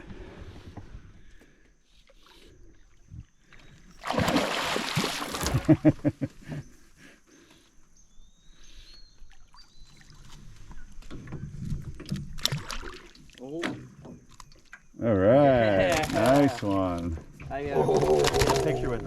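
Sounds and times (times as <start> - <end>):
water splashing: 4.0 - 6.0, 12.3 - 13.6.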